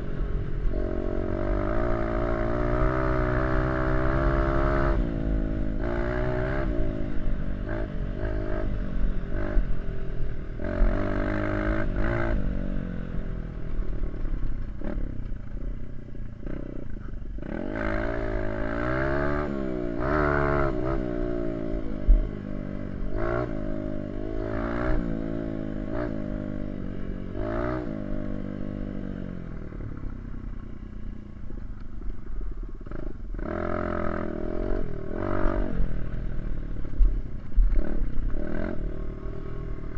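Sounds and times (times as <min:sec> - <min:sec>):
dirt bike engine revving: 0:00.7 - 0:09.7, 0:10.6 - 0:12.7, 0:16.4 - 0:30.6, 0:32.8 - 0:36.9, 0:37.7 - 0:39.9.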